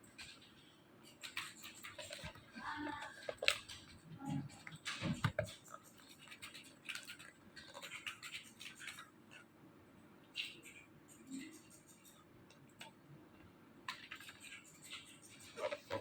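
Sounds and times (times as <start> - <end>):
objects scratching and rustling: 0.1 - 9.5, 13.9 - 16.0.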